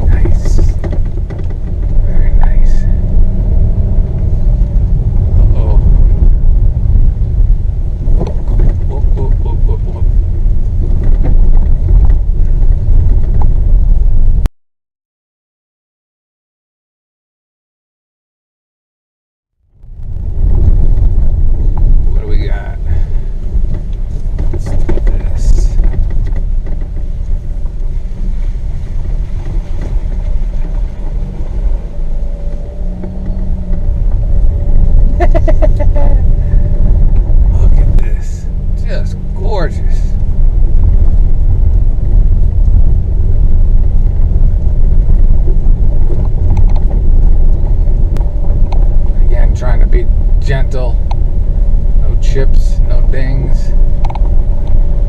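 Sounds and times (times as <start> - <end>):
knocks and rattles over bumps: 0.0 - 6.7, 8.0 - 14.5, 20.0 - 39.4
car tyres rumbling on dirt: 0.0 - 14.5, 19.6 - 55.0.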